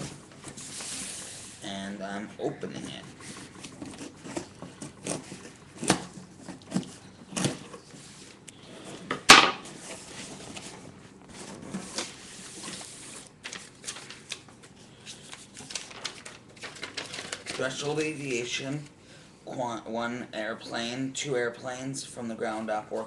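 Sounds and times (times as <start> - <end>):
knife cutting cardboard: 3.6 - 7.8.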